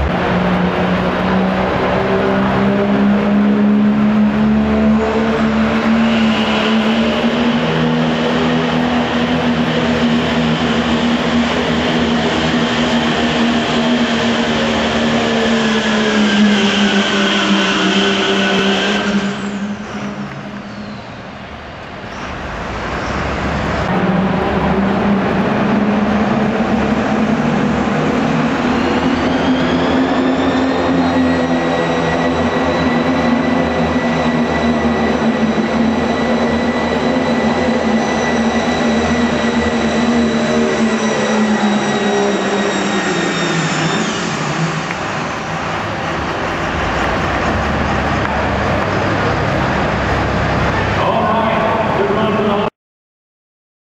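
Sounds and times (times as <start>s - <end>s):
diesel truck engine at full throttle: 0.0s - 31.7s, 43.0s - 52.5s
high turbo whistle: 1.4s - 21.6s, 23.9s - 45.7s.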